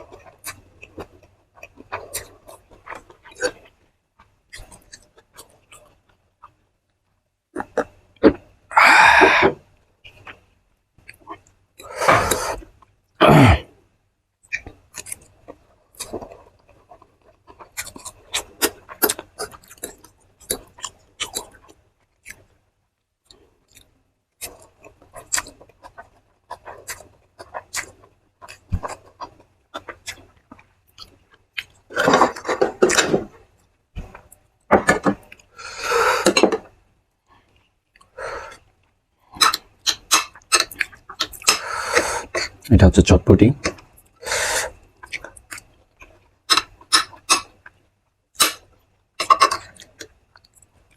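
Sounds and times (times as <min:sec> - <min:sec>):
crunchy clicks and crackles: 0:00.0 - 0:08.6, 0:09.6 - 0:11.8, 0:14.4 - 0:35.5, 0:36.3 - 0:41.6, 0:42.4 - 0:50.9
person chewing: 0:00.1 - 0:06.6, 0:07.6 - 0:10.4, 0:14.5 - 0:22.5, 0:23.3 - 0:33.2, 0:39.3 - 0:42.7, 0:43.6 - 0:47.8, 0:48.4 - 0:50.8
breathy bursts: 0:08.7 - 0:09.6, 0:41.6 - 0:42.4, 0:44.2 - 0:44.7.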